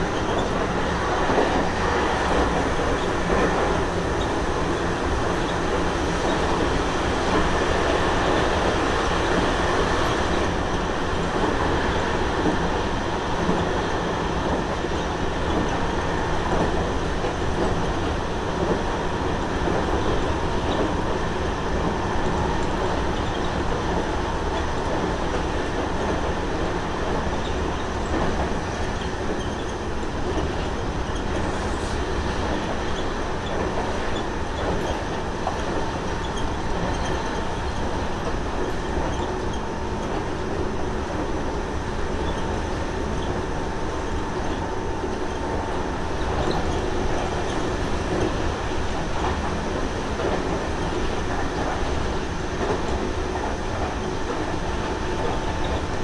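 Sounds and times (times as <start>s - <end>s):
rumble of wheels on rail: 0.0s - 56.0s.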